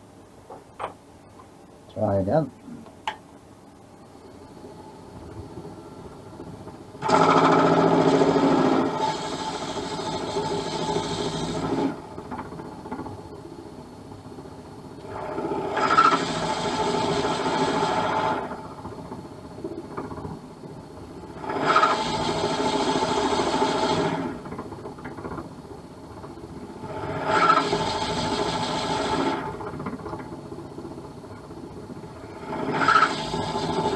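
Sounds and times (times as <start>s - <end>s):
lathe running: 4.4s - 33.9s
drill bit rasping whine: 32.4s - 33.9s.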